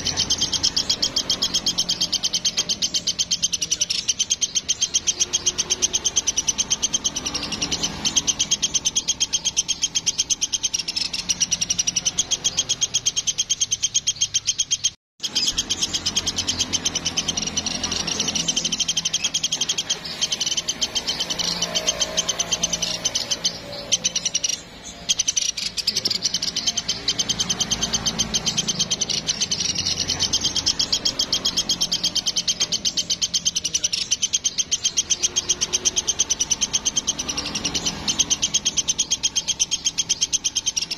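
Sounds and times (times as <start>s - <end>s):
woodpecker rattling call: 0.0s - 40.9s.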